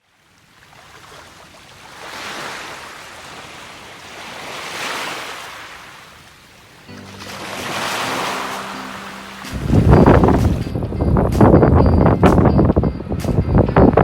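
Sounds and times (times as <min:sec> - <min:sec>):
waves breaking: 0:00.0 - 0:10.8.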